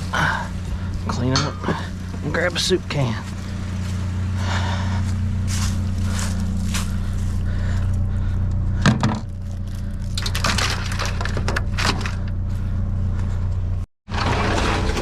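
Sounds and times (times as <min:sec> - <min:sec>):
steady low hum: 0:00.0 - 0:13.9
objects knocking and clattering: 0:08.8 - 0:09.4, 0:10.2 - 0:12.2.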